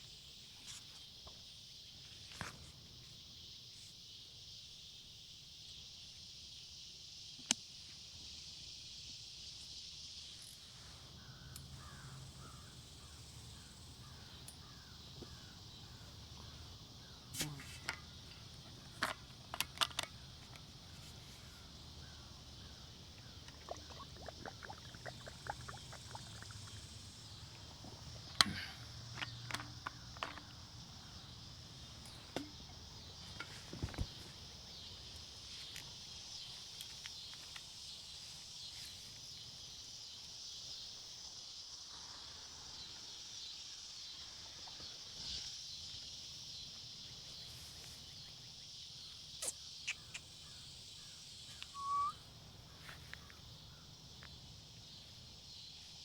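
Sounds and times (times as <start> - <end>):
insects droning: 0.0 - 56.0
faint short chirps: 51.5 - 52.2.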